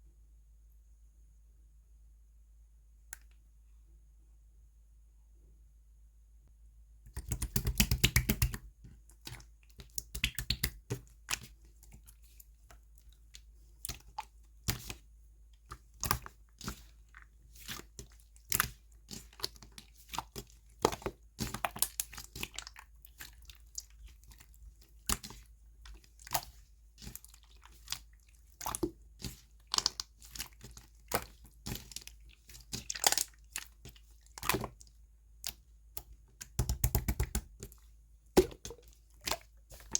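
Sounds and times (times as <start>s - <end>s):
slime squeezed with sticky pops: 7.1s - 8.6s, 9.3s - 12.0s, 35.4s - 37.8s.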